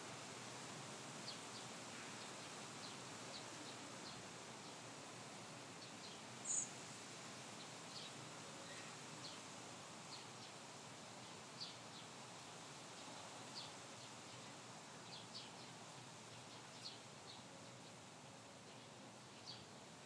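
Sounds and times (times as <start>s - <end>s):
steady hiss: 0.0s - 20.0s
small bird chirping: 6.0s - 6.8s.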